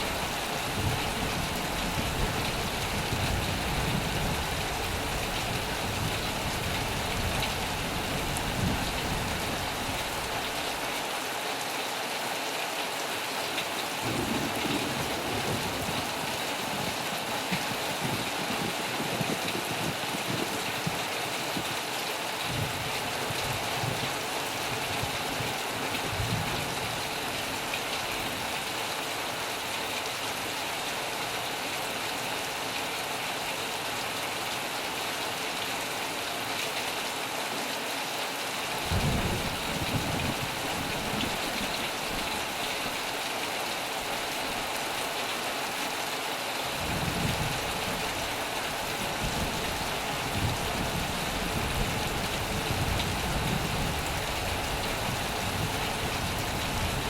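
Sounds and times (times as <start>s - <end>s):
heavy rain on a metal roof: 0.0s - 57.0s
low rumbles of thunder: 14.0s - 21.1s, 38.8s - 42.3s, 46.8s - 48.4s, 49.0s - 57.0s.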